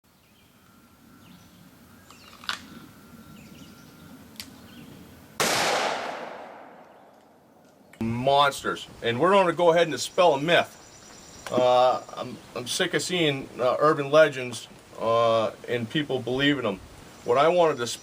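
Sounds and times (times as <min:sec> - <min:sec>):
faint bird chirps: 0:00.1 - 0:05.3, 0:09.9 - 0:12.6
loud gunshot: 0:05.4 - 0:06.9.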